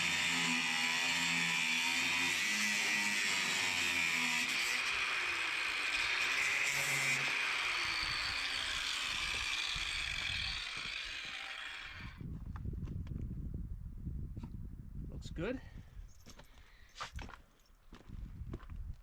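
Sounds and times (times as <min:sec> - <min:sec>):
angle grinder cutting steel: 0:00.0 - 0:12.2.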